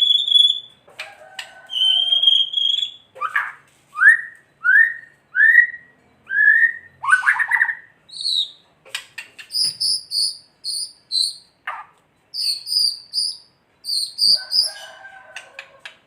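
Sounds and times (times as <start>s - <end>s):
bird singing whistled notes: 0.0s - 0.8s, 1.7s - 3.4s, 4.0s - 8.6s, 9.5s - 11.6s, 12.3s - 15.0s
harsh rattling bird call: 12.4s - 15.7s.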